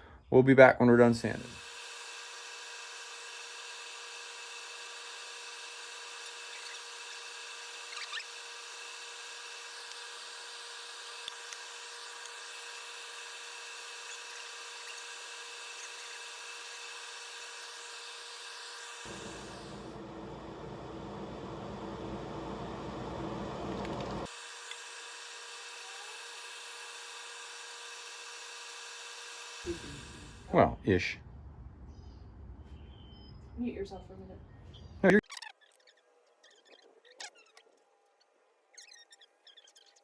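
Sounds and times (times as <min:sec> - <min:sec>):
power tool whining: 0:01.2 - 0:30.5.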